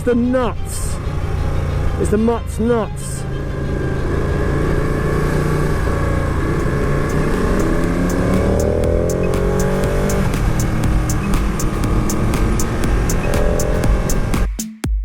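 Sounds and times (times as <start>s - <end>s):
motorcycle engine accelerating: 3.2s - 14.4s.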